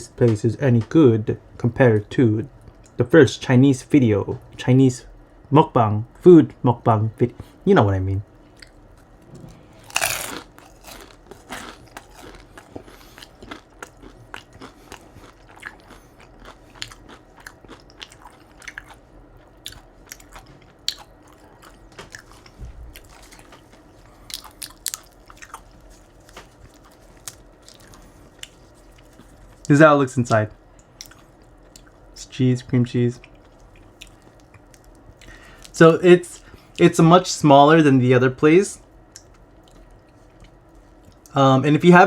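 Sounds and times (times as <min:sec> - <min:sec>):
crunchy chewing: 0:08.5 - 0:29.8, 0:30.7 - 0:32.1, 0:33.2 - 0:35.7
crunchy bite into fried food: 0:09.8 - 0:18.9.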